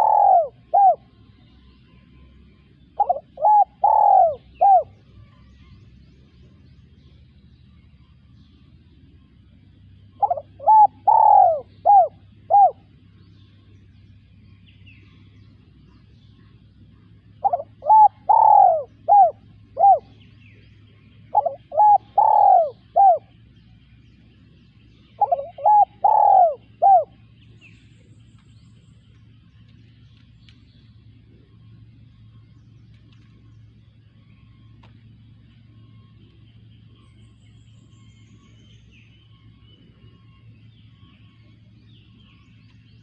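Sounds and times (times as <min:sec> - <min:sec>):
dove cooing: 0:00.0 - 0:01.3, 0:02.5 - 0:05.0, 0:10.1 - 0:13.1, 0:16.4 - 0:23.5, 0:25.0 - 0:27.4.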